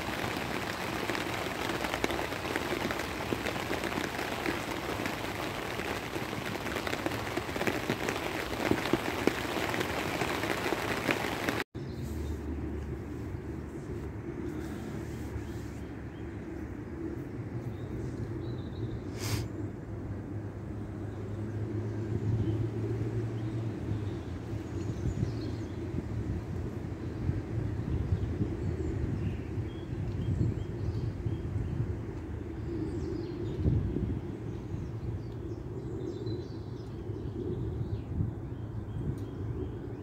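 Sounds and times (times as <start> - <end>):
rain drops pattering: 0.0 - 11.7
brief hiss: 19.1 - 19.5.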